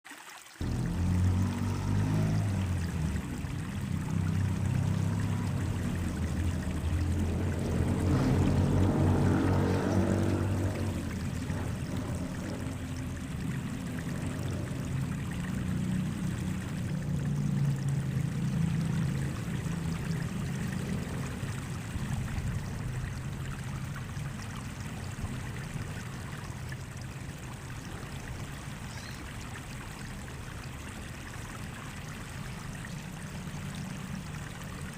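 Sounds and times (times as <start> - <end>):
water trickling: 0.0 - 34.9
low rumble: 0.6 - 28.1.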